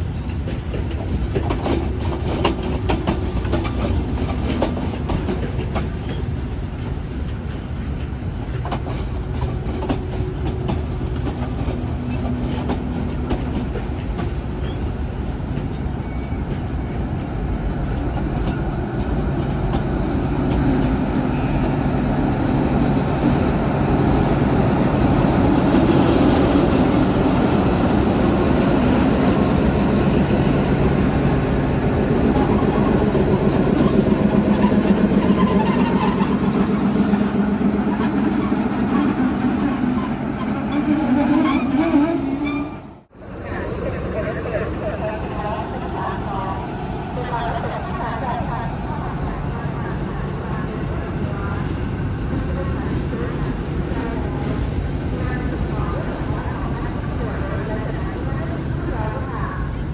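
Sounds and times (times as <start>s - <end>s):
diesel train engine drone: 0.0s - 59.9s
train wheel clicks: 0.1s - 14.8s, 17.9s - 42.8s.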